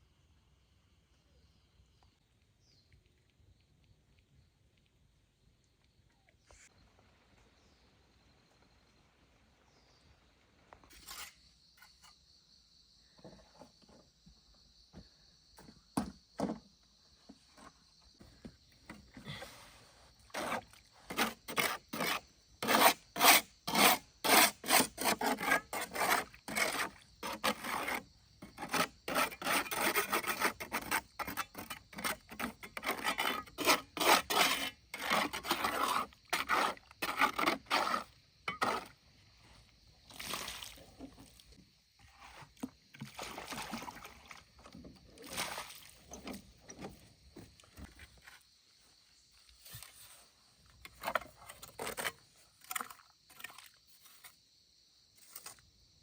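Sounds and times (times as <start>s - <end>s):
handsaw rasping through wood: 20.3s - 28.0s, 28.6s - 38.8s.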